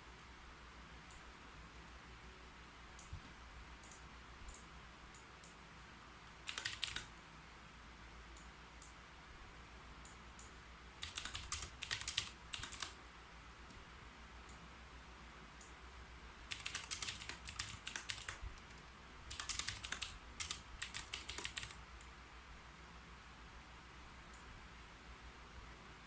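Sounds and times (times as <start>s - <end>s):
keyboard typing: 6.3s - 7.2s, 10.4s - 13.0s, 16.5s - 21.8s.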